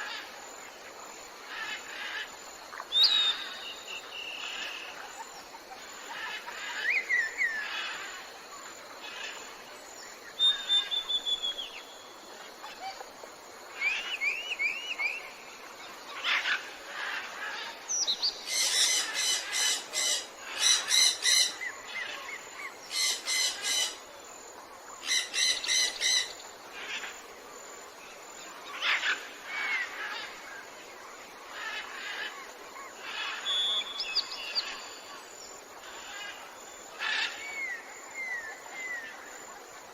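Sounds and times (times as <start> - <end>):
birds calling and whistling: 2.8 - 8.1, 10.2 - 12.0, 13.7 - 15.5, 33.0 - 35.2.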